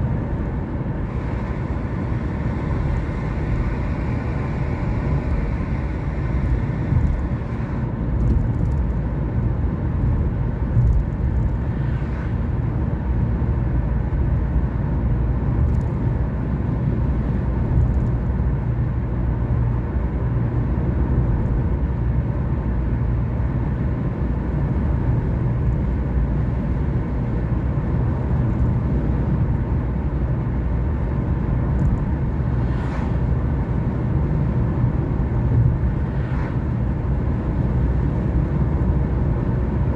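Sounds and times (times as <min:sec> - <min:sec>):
car engine and road rumble: 0:00.0 - 0:39.9
higher hiss of passing car: 0:01.1 - 0:07.9, 0:32.6 - 0:33.4.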